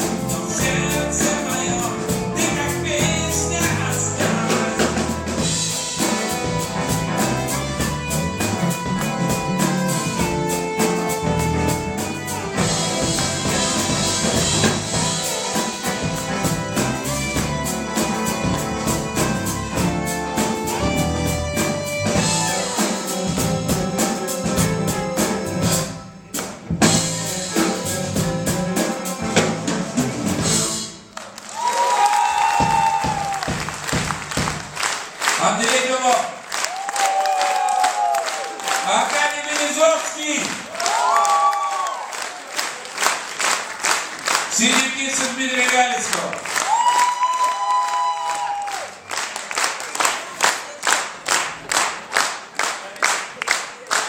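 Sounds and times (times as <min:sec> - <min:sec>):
drum kit beat: 0:00.0 - 0:41.5
live band playing: 0:00.0 - 0:54.0.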